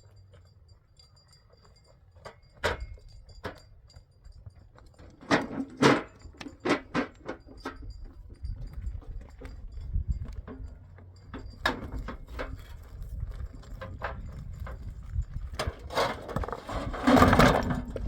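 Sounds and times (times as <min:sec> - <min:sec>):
hard objects knocking and clacking: 0:04.8 - 0:12.6.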